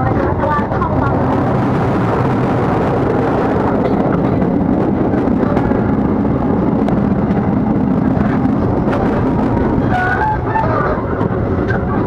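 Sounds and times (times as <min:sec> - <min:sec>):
train rumbling on rails: 0:00.0 - 0:12.0.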